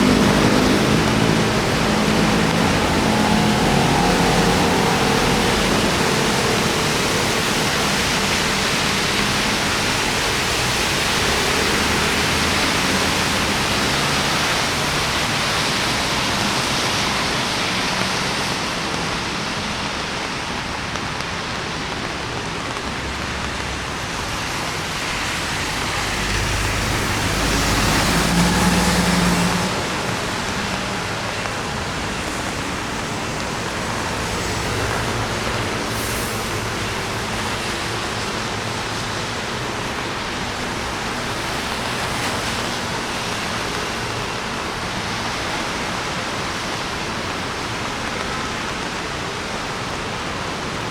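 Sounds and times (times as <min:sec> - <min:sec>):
vehicle engine passing close: 0:00.0 - 0:16.8, 0:24.5 - 0:39.0
rain and tyres on wet road: 0:00.0 - 0:50.9.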